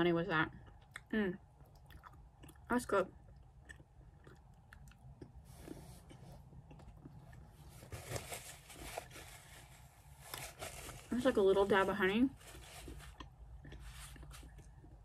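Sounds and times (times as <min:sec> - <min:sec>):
faint chewing: 0:00.5 - 0:11.2, 0:12.3 - 0:15.0
wet mouth clicks: 0:00.6 - 0:02.7.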